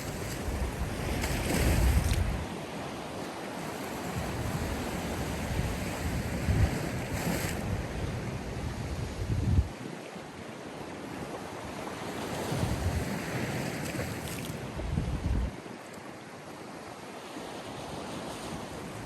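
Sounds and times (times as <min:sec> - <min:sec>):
wind buffeting microphone: 0:00.0 - 0:02.6, 0:04.0 - 0:09.8, 0:12.4 - 0:13.4, 0:14.6 - 0:15.6
sea waves breaking on shore: 0:00.0 - 0:19.0.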